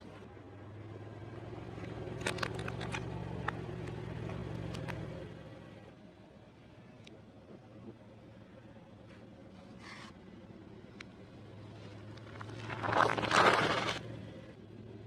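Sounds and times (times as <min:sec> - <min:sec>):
car engine running low: 0:00.0 - 0:15.0
tyre crushing crunchy items: 0:12.2 - 0:14.0.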